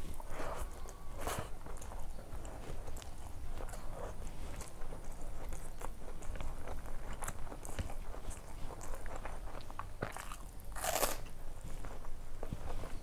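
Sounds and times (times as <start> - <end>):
chewing rice: 0.0 - 13.0
fingers mixing rice: 0.0 - 13.0.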